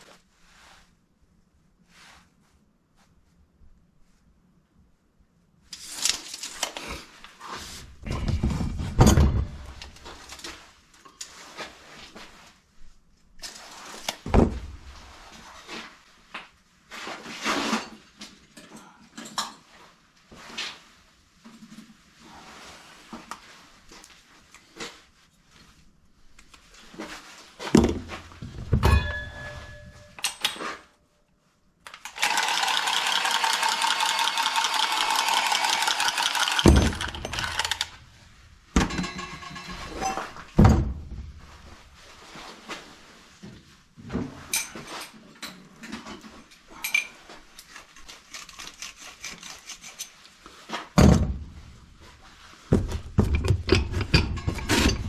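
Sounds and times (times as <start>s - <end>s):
metal tools clanking and rattling: 28.7s - 30.8s, 35.5s - 38.0s, 38.8s - 40.4s, 53.2s - 55.0s.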